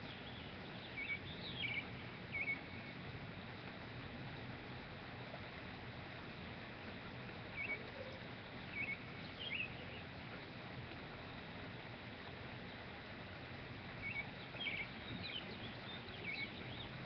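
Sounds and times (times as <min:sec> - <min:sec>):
bird chirping: 0:00.0 - 0:02.9, 0:07.5 - 0:10.1, 0:14.0 - 0:17.0
steady background hiss: 0:00.0 - 0:17.0.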